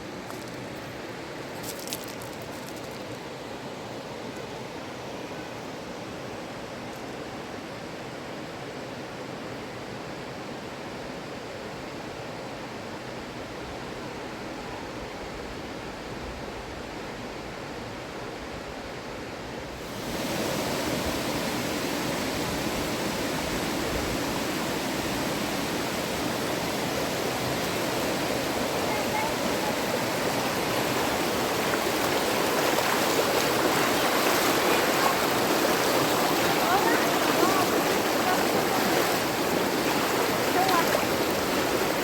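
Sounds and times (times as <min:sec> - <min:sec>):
rushing river water: 0:19.6 - 0:42.0.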